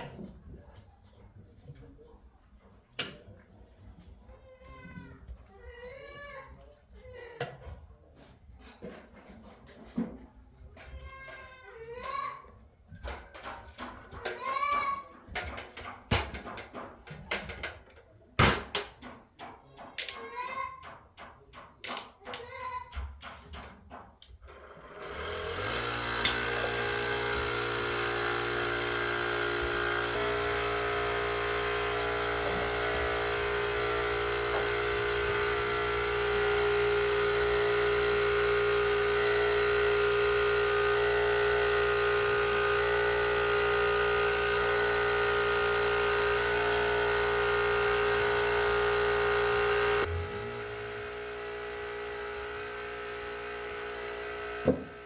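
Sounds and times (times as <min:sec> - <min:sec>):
small motor droning whine: 0:24.5 - 0:55.0.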